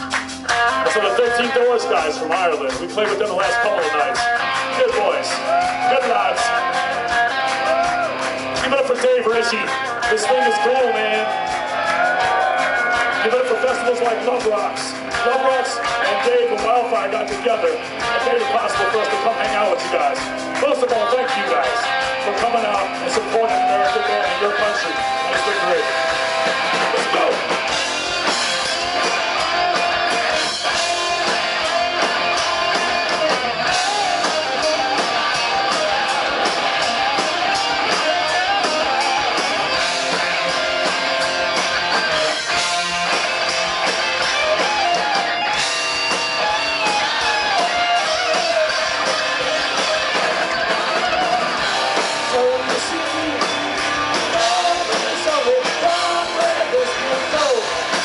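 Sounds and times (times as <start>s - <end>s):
drum beat: 0.0s - 58.0s
electric guitar: 0.0s - 58.0s
live rock band playing: 0.0s - 58.0s.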